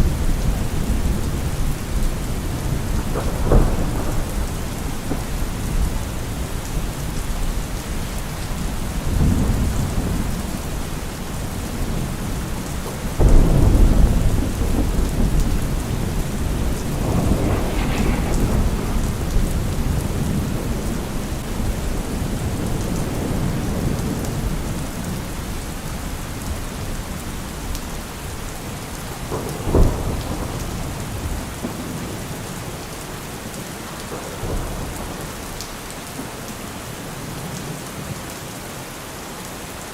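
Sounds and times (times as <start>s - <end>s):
thunder rumbling: 0.0s - 25.6s
heavy rain: 0.0s - 39.9s.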